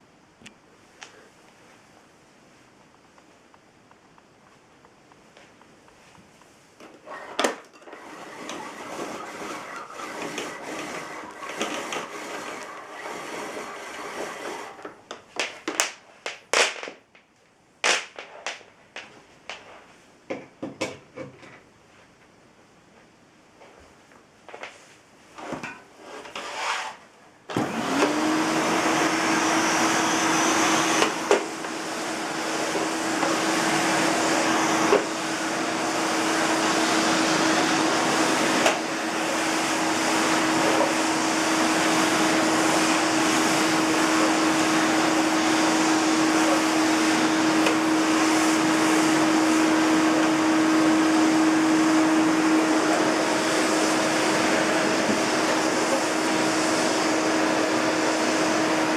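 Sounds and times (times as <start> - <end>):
vacuum cleaner motor whirring: 6.8 - 15.8, 25.4 - 58.9.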